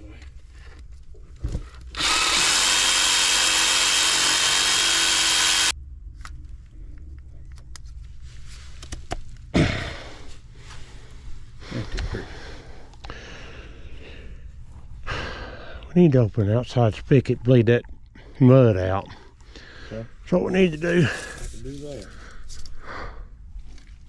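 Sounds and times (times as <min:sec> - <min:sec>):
power tool running: 0:01.9 - 0:05.7.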